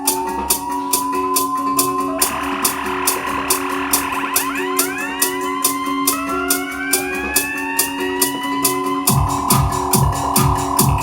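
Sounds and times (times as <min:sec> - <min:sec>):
band music with guitar: 0:00.0 - 0:11.0
high-pitched percussion tick: 0:00.0 - 0:11.0
rising tones: 0:01.6 - 0:11.0
heavy kick drum beat: 0:09.1 - 0:11.0.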